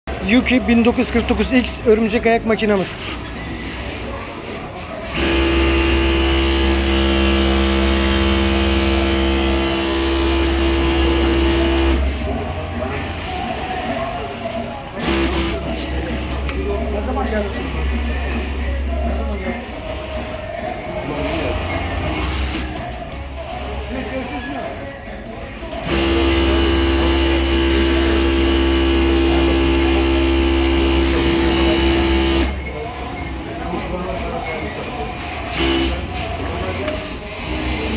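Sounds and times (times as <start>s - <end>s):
sewing machine humming: 5.1s - 12.3s, 15.0s - 16.3s, 25.8s - 32.7s, 35.3s - 37.9s.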